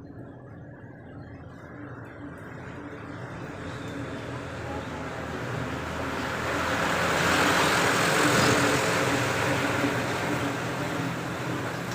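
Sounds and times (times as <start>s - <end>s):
vehicle passing by: 3.5s - 11.9s.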